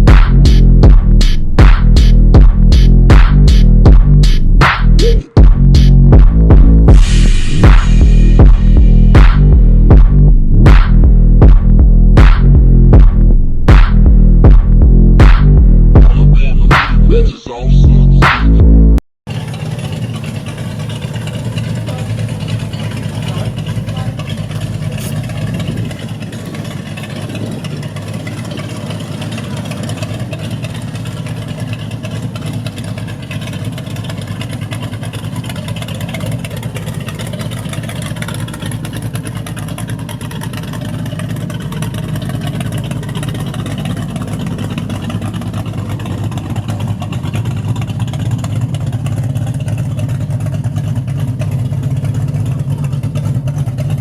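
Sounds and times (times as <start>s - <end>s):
heavy bass from subwoofers: 0.0s - 19.0s.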